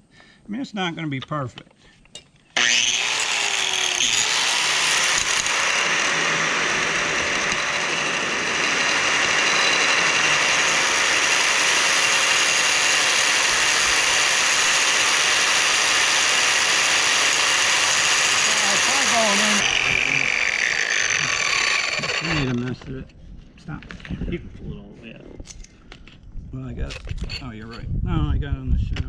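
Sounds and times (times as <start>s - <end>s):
metal lathe cutting steel rod: 2.6s - 22.6s.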